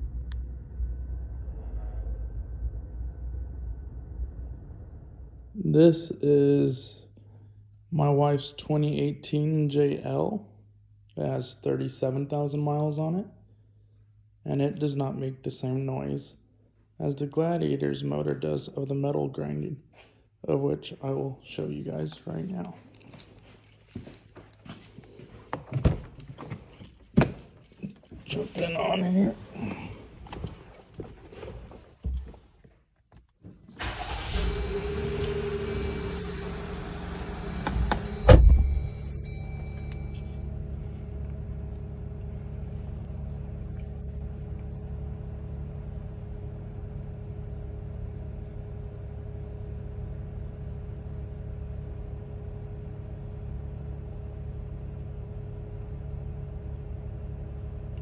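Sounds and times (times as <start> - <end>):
car engine starting and idling: 0.0 - 6.3, 21.5 - 32.6, 33.6 - 58.0.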